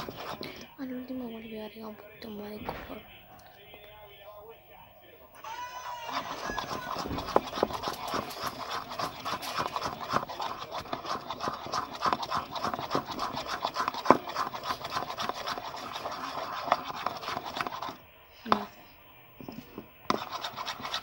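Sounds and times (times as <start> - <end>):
spoon scraping a bowl: 0.0 - 0.7, 6.0 - 18.7, 19.4 - 21.0.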